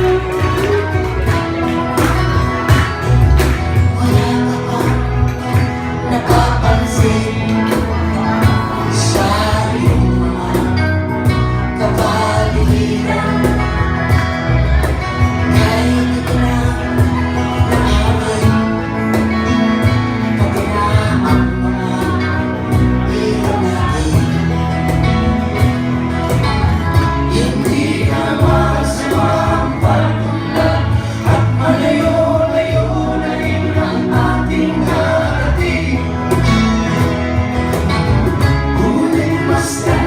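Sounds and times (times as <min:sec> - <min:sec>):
live band playing: 0:00.0 - 0:40.0
person singing: 0:03.8 - 0:14.4, 0:38.5 - 0:40.0.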